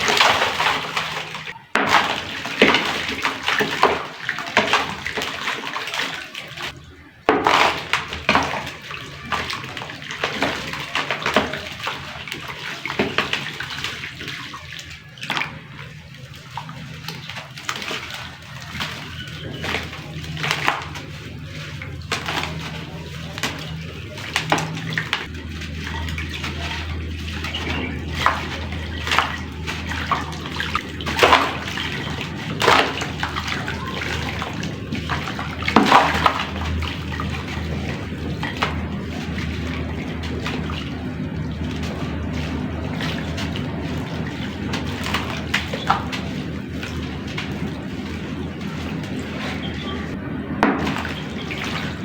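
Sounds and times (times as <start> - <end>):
low hum: 6.8 - 52.0
clay splashing into water: 16.4 - 49.9.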